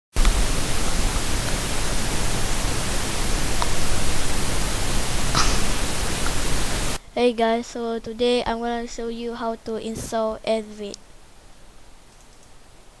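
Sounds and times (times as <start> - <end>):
static hiss: 0.2 - 13.0
faint clicks: 12.1 - 12.6.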